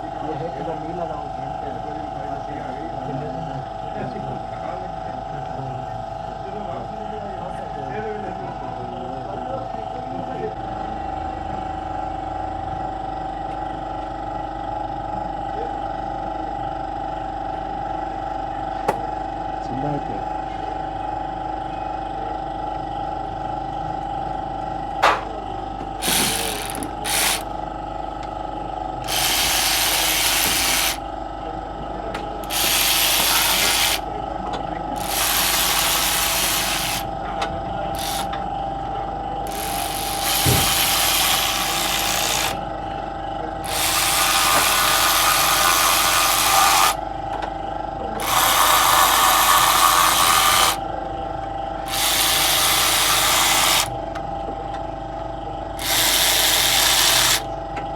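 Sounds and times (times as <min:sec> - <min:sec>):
steady background hum: 0:00.0 - 0:57.9
rasping hissy tool: 0:26.0 - 0:27.5, 0:29.1 - 0:31.0, 0:32.4 - 0:34.0, 0:35.0 - 0:37.1, 0:38.0 - 0:38.3, 0:39.5 - 0:42.6, 0:43.6 - 0:47.0, 0:48.2 - 0:50.8, 0:51.9 - 0:53.9, 0:55.8 - 0:57.4.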